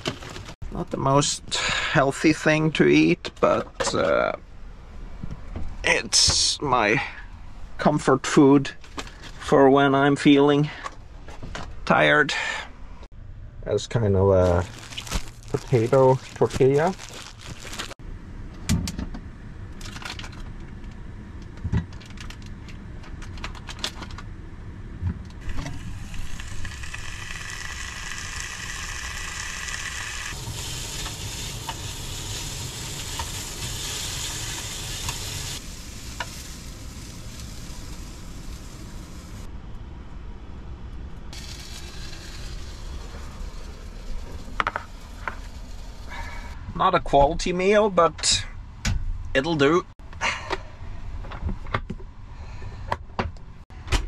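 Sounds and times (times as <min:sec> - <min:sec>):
hot dogs sizzling in pan: 0:25.4 - 0:39.5, 0:41.4 - 0:46.5.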